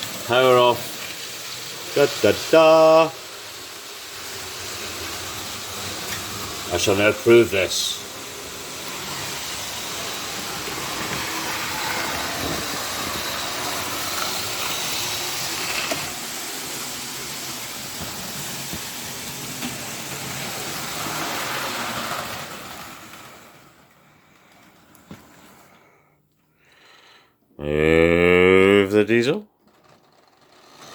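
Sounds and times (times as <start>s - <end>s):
model train running on track: 0.0s - 25.1s, 29.6s - 30.9s.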